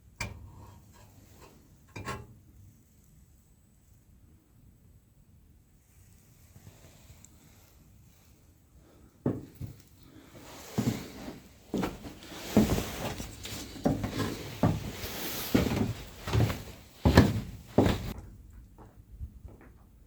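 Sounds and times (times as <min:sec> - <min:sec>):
rustling and scraping: 0:09.3 - 0:18.2.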